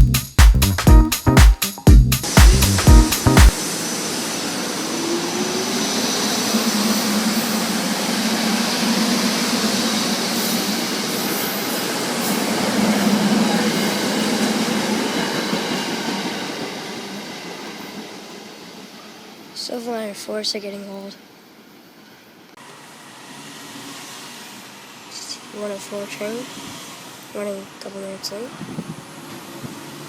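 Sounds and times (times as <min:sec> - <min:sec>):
train wheels rushing on track: 0:03.2 - 0:19.6, 0:22.6 - 0:30.0.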